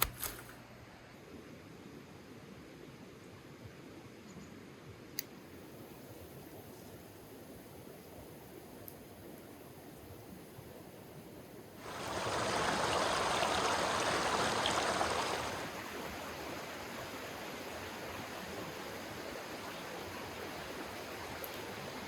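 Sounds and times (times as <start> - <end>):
stream water rushing: 11.8 - 22.0.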